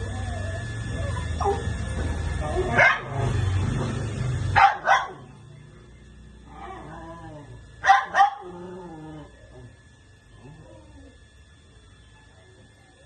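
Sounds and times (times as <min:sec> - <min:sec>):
wavering whine-like calls: 0:00.0 - 0:13.0.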